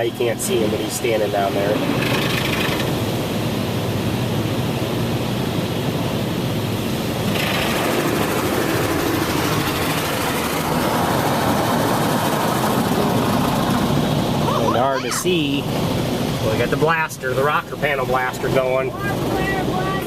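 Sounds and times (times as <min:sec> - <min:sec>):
car wash machinery hum: 0:00.0 - 0:20.0
high-pressure water spray: 0:07.0 - 0:13.9.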